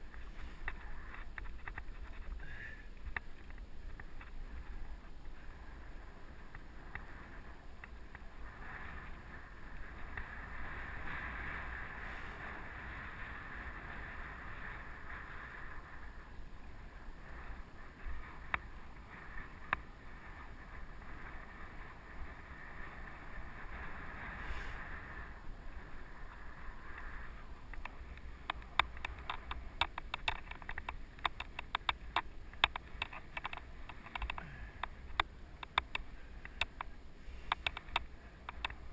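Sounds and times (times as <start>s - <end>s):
bike tyres rolling on dirt: 0.0s - 38.9s
clicks and rattles: 28.5s - 36.9s.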